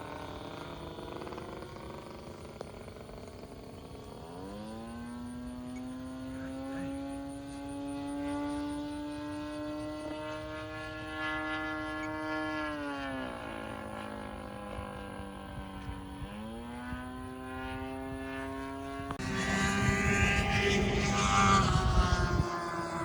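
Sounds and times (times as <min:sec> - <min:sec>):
small model airplane engine: 0:00.0 - 0:23.0.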